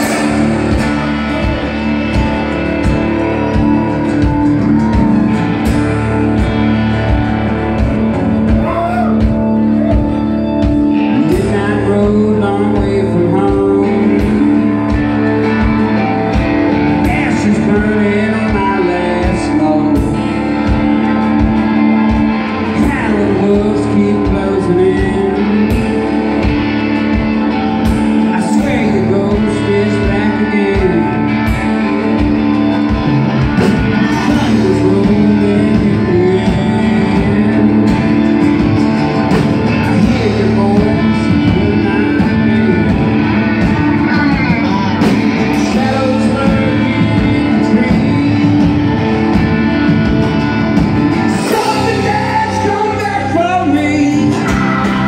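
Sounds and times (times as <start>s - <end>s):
drum beat: 0.0s - 11.6s
guitar: 0.0s - 55.0s
person singing: 0.0s - 55.0s.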